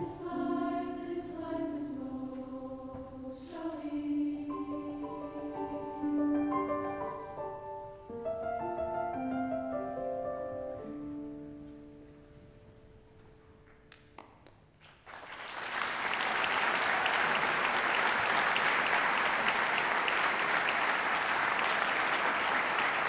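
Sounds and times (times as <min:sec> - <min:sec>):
audience applause: 0:15.0 - 0:23.0.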